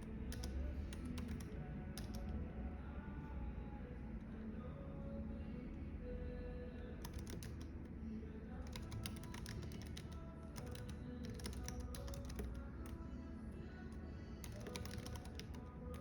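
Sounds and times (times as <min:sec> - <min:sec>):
cafe background hum: 0:00.0 - 0:16.0
faint music: 0:00.0 - 0:16.0
typing on a keyboard: 0:00.3 - 0:02.2, 0:07.0 - 0:07.7, 0:08.6 - 0:13.0, 0:14.4 - 0:16.0.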